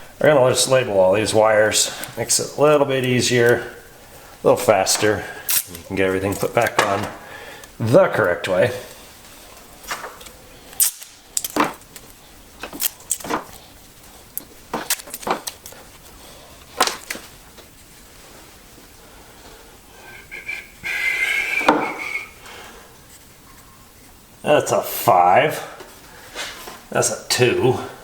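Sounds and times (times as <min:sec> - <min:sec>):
hands clicking and tapping wires: 0:04.7 - 0:07.8, 0:09.6 - 0:13.7, 0:14.3 - 0:16.0, 0:16.6 - 0:17.7.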